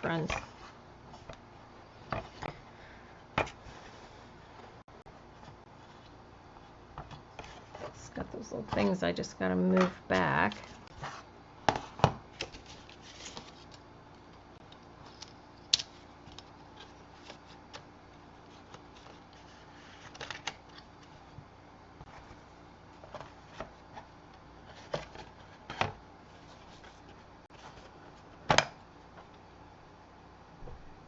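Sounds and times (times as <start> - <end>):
soft paper rustling: 12.3 - 13.8, 18.4 - 21.4.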